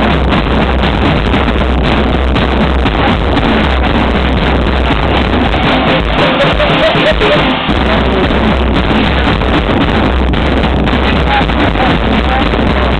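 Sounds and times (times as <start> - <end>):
drum kit playing loudly: 0.0 - 12.9.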